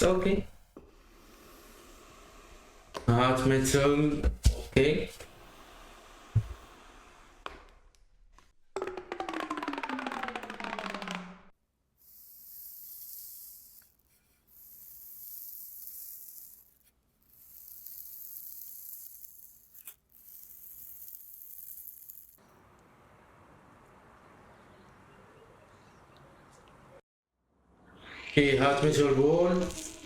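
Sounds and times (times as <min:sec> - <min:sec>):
high hissing sizzles: 0:12.0 - 0:22.4, 0:27.9 - 0:30.0
hot metal crackling in liquid: 0:28.8 - 0:30.0.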